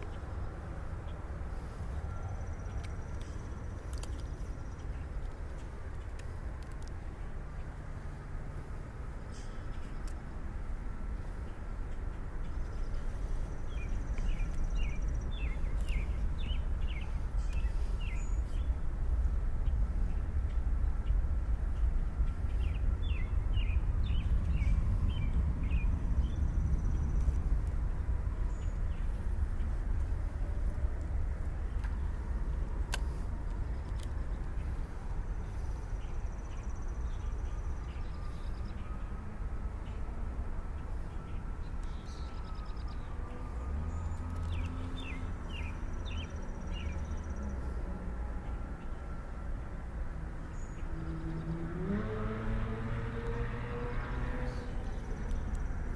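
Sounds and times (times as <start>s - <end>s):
low outdoor rumble: 0.0s - 55.9s
songbird chirping: 0.0s - 55.9s
low rumble: 12.8s - 39.9s.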